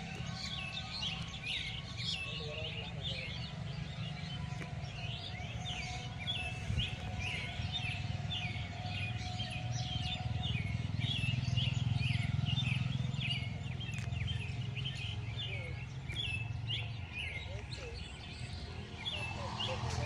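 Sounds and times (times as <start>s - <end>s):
birds chirping: 0.0s - 20.0s
steady low rumble: 13.8s - 20.0s.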